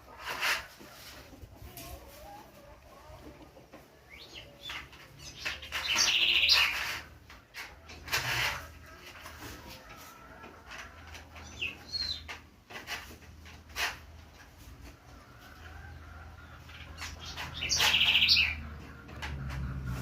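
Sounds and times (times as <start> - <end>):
pet birds chirping: 4.0 - 7.0, 11.4 - 12.3, 16.4 - 18.8
bird fast trill: 5.3 - 6.8, 17.2 - 18.6.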